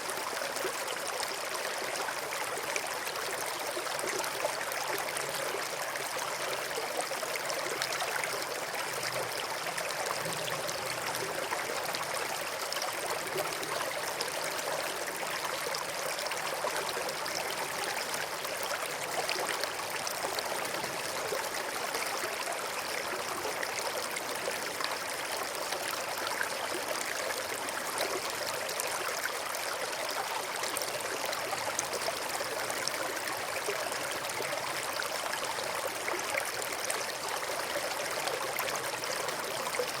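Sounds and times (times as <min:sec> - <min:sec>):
river water flowing over rocks: 0:00.0 - 0:40.0.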